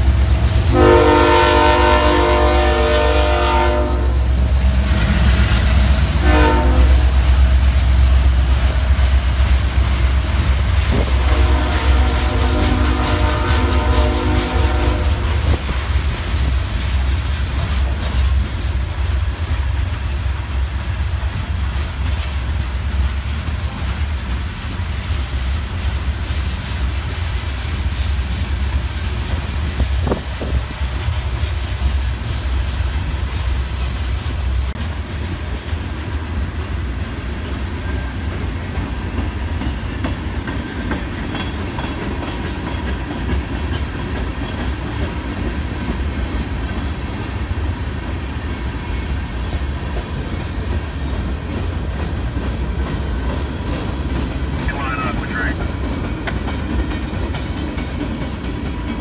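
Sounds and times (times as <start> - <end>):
steel wheels rumbling on rails: 0.0 - 59.0
wheels clicking over rail joints: 15.2 - 33.6, 34.7 - 48.2, 48.8 - 54.7, 55.6 - 59.0.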